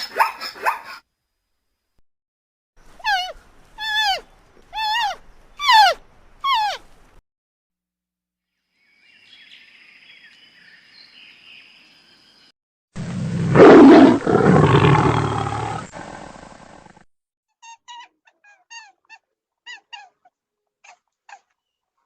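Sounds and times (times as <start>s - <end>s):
large animal roaring: 13.0s - 17.0s.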